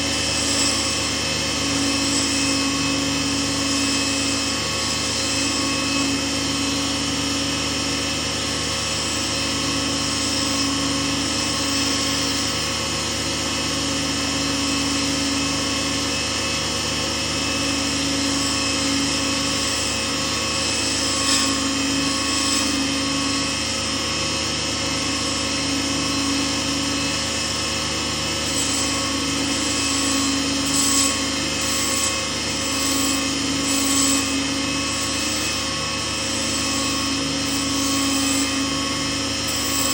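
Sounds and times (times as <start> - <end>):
lathe motor humming: 0.0 - 39.9.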